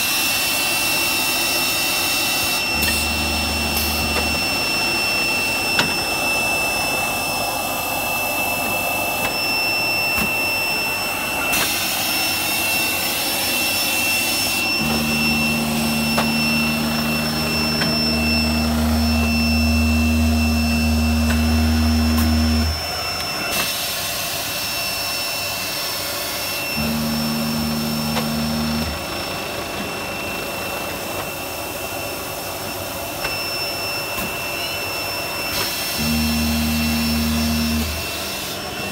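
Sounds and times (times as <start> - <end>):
machine blower whine and whistle: 0.0 - 38.9.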